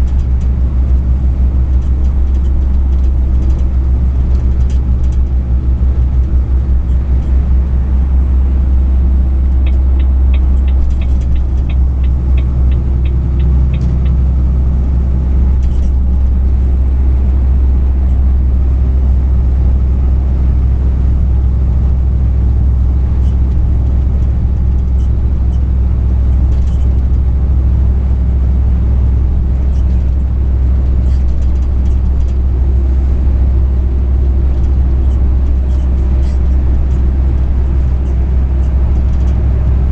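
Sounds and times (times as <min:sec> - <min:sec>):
truck engine rumble: 0:00.0 - 0:39.9
light ticks: 0:09.5 - 0:14.2.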